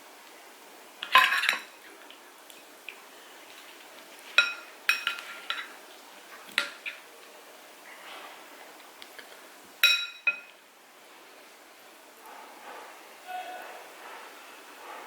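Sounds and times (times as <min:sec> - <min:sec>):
cutlery clinking against a dish: 0:04.3 - 0:05.7, 0:09.8 - 0:10.5.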